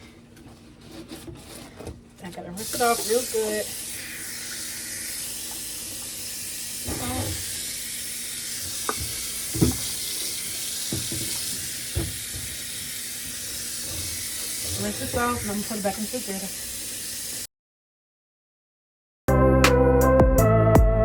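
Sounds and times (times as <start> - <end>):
faucet running: 2.6 - 17.5
part knocking against sink: 8.8 - 9.9, 10.9 - 12.5.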